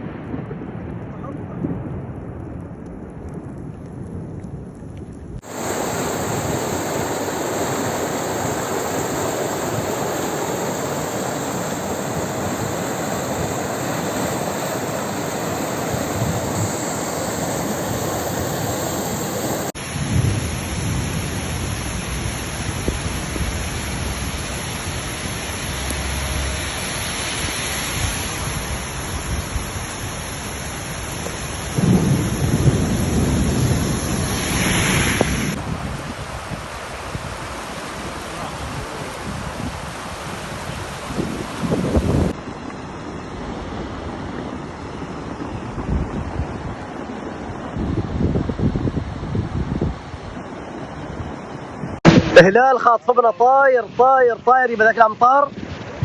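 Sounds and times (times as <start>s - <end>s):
thunder rumbles: 0.0s - 26.8s, 28.0s - 37.4s
heavy rain falling: 5.4s - 42.4s.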